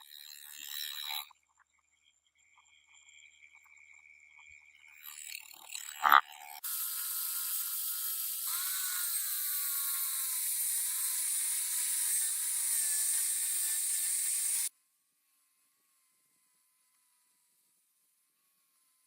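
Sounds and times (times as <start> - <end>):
small motor whirring: 0.0 - 1.4, 2.6 - 14.7.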